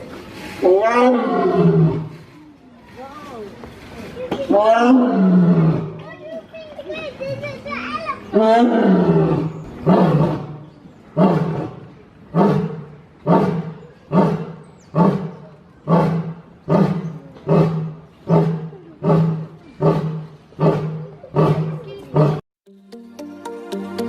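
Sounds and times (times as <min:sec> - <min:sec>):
lion roaring grunts: 0:11.2 - 0:22.4
music: 0:22.7 - 0:24.0.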